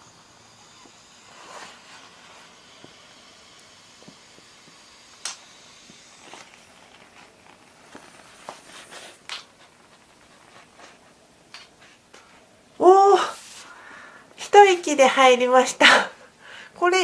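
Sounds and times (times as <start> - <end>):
vinyl balloon crinkling: 5.9 - 12.2.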